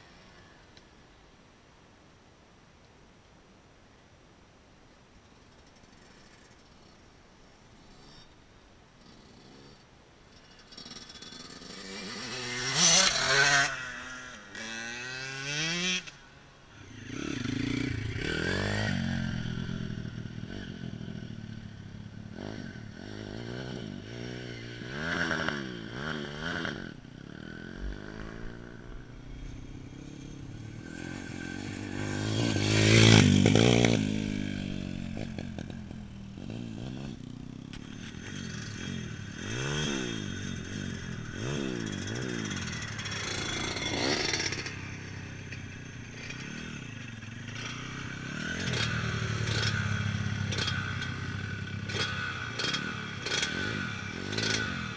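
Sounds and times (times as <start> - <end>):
dirt bike engine revving: 10.7 - 16.1, 16.8 - 21.7, 22.3 - 54.9.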